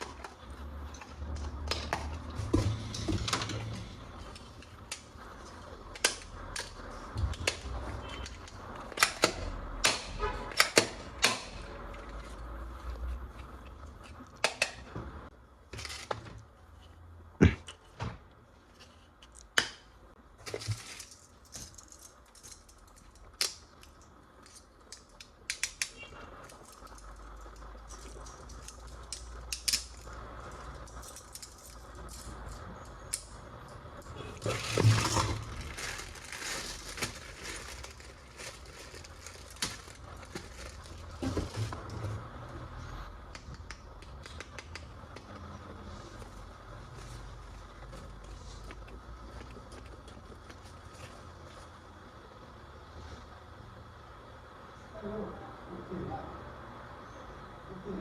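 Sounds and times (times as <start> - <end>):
plastic rustling and crinkling: 20.3 - 25.2, 34.3 - 42.5, 45.0 - 51.8
plastic toy parts clicking: 20.6 - 30.1.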